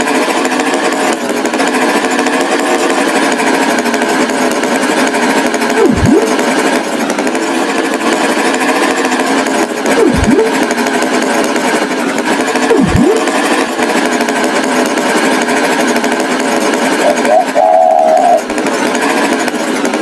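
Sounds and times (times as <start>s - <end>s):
motor rattling with swooping pitch: 5.8s - 7.2s, 9.9s - 10.9s, 12.7s - 14.1s.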